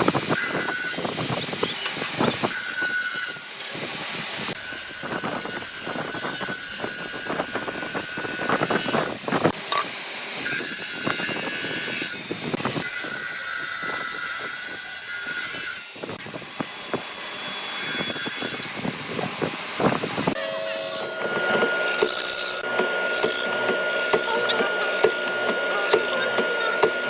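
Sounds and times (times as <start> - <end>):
power tool whining on hardwood: 13.8 - 27.0.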